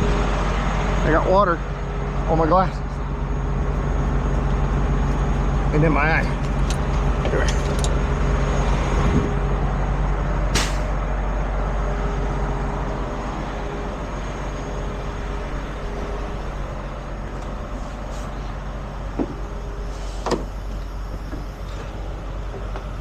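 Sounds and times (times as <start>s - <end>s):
diesel truck engine running: 0.0s - 23.0s
air hissing out: 10.5s - 11.0s, 19.8s - 20.7s.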